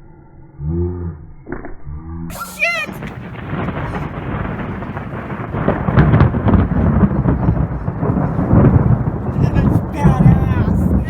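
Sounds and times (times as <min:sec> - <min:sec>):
rolling thunder rumbling: 0:02.3 - 0:11.0.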